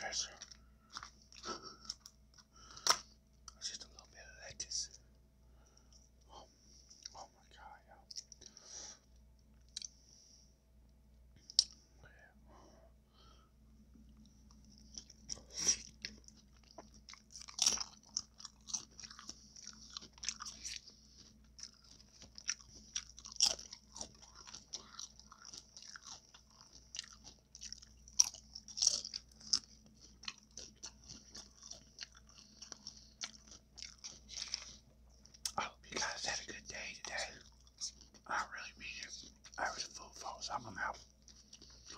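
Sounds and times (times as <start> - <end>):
chewing and crunching taco: 0.0 - 10.2, 13.9 - 41.9.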